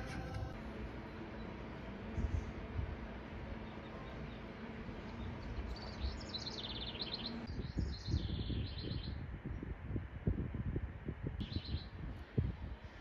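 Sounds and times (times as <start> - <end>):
high trilled bird chirps: 5.1 - 9.2, 11.4 - 11.9.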